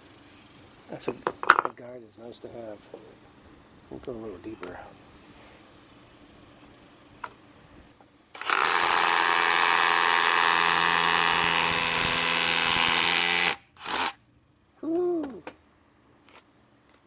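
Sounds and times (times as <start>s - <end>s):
rotary hammer drilling into stone: 8.4s - 14.2s.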